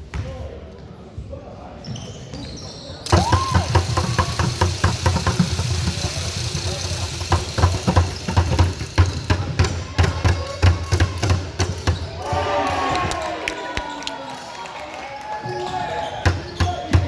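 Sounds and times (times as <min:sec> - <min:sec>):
voices echoing in hall: 0:00.3 - 0:17.0
basketball bouncing on court: 0:03.1 - 0:12.5, 0:16.2 - 0:17.0.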